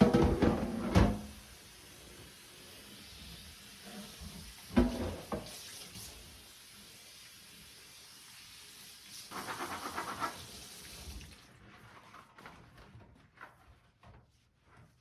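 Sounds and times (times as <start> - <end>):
tap water running into sink: 3.1 - 7.3, 8.0 - 11.5.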